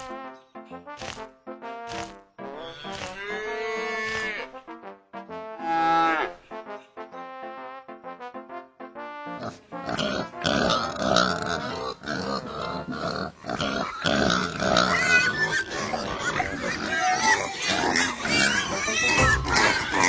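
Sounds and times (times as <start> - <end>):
pigs grunting: 0.0 - 4.5, 9.3 - 20.0
pigs squealing: 1.9 - 4.5, 5.6 - 6.4, 9.4 - 20.0.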